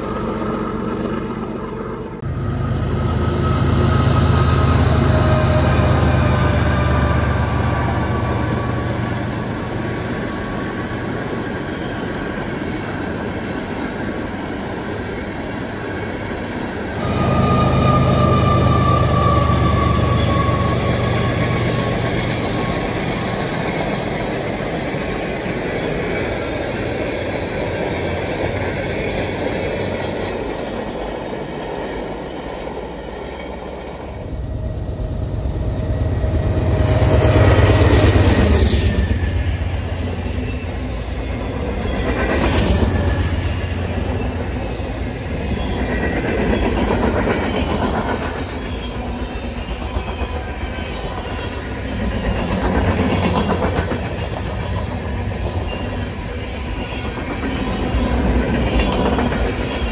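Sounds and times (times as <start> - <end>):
train wheels rumbling on rails: 0.0 - 59.9
high wheel squeal: 2.4 - 13.2, 16.8 - 23.6, 35.8 - 59.9.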